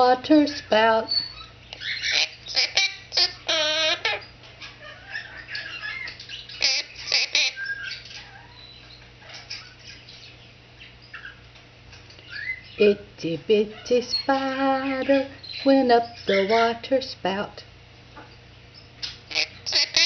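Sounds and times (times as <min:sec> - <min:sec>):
parrot chattering: 0:00.0 - 0:16.8, 0:19.0 - 0:20.0
parrot warbling: 0:00.5 - 0:10.2, 0:13.7 - 0:16.8, 0:19.3 - 0:20.0
parrot sharp chirps: 0:00.5 - 0:11.4, 0:18.8 - 0:20.0.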